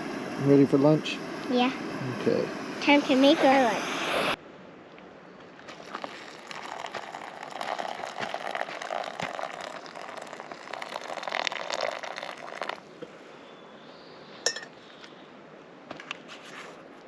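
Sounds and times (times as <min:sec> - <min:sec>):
water bubbling in a pot: 0:05.7 - 0:12.8.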